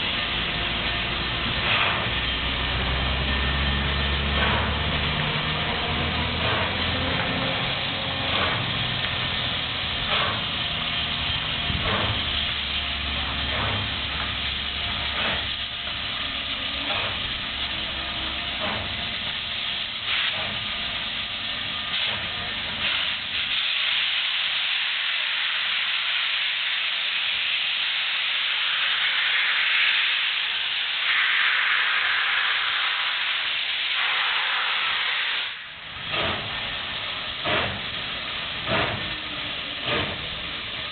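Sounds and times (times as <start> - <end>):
loud steam hiss: 0.0 - 40.9
steam locomotive exhaust chuffs: 0.0 - 40.9.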